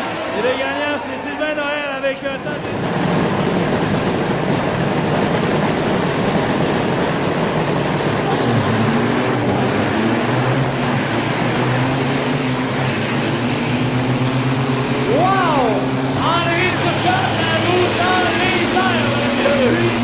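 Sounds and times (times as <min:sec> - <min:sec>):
diesel truck engines running: 0:00.0 - 0:20.0
high rising whistle: 0:02.3 - 0:14.0.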